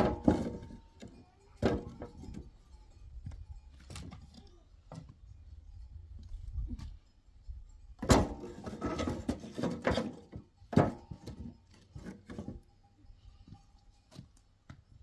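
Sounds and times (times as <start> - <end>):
knocks and clunks: 0.0 - 2.5, 8.0 - 12.7.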